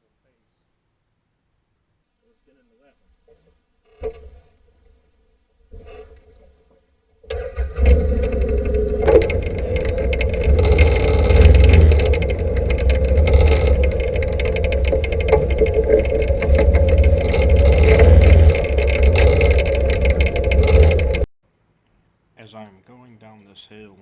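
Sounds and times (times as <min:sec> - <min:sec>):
atv engine running at low speed: 0:07.3 - 0:21.3
clicks and knocks: 0:07.3 - 0:21.3.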